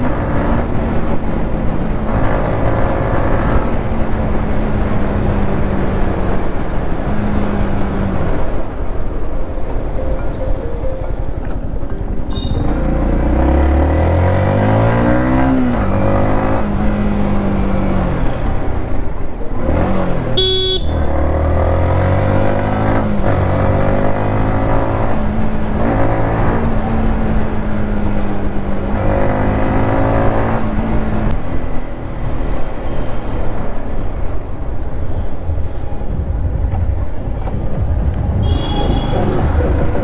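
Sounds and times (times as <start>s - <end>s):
vehicle horn: 12.3s - 12.8s, 20.4s - 21.1s, 38.4s - 39.8s
motorcycle engine revving: 12.4s - 18.4s
wind noise: 33.8s - 40.0s.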